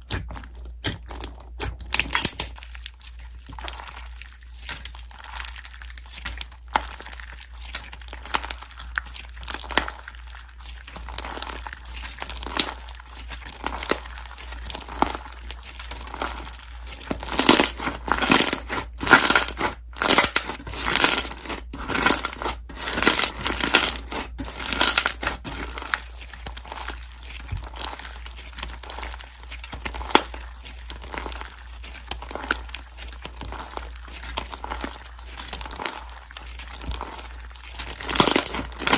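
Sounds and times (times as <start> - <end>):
slime squelching and popping: 0.0 - 38.9.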